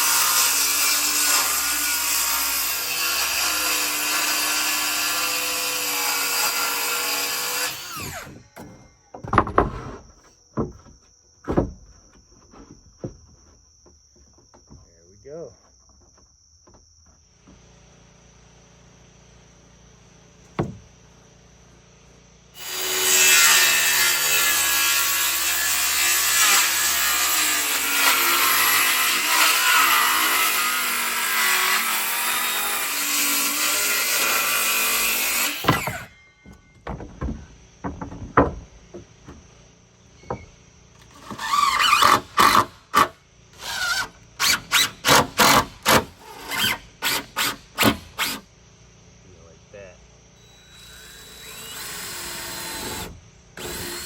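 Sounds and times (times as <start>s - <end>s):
power saw cutting wood: 0.0s - 8.4s, 22.6s - 36.2s, 41.0s - 48.4s, 50.4s - 54.0s.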